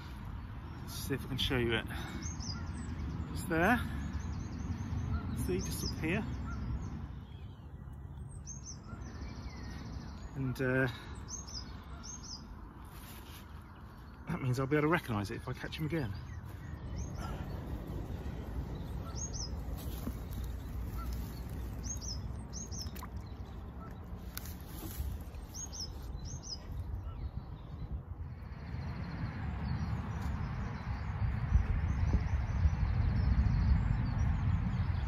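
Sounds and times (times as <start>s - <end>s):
steady rush of wind: 0.0s - 35.0s
small bird chirping: 15.4s - 27.8s
wind on the microphone: 15.8s - 35.0s.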